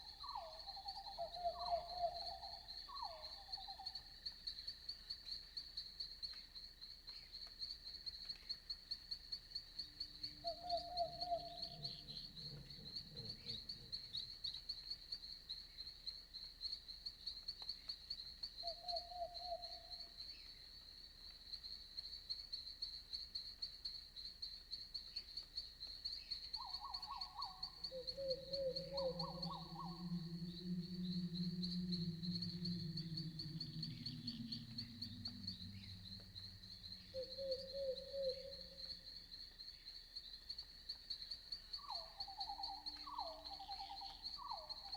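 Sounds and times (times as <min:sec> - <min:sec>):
insects chirping: 0:00.0 - 0:44.9
low animal calls: 0:10.4 - 0:14.2, 0:26.7 - 0:39.1
low steady drone: 0:27.8 - 0:38.8.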